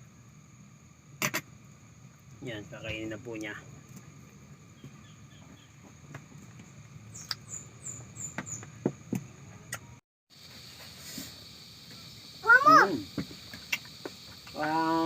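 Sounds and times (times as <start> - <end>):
small animal chirping: 7.1 - 8.6.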